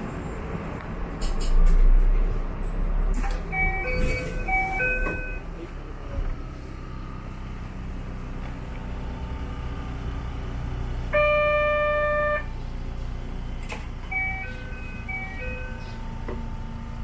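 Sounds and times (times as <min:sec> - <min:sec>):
electric train humming: 0:03.5 - 0:17.0
loud electronic tone: 0:11.1 - 0:12.5.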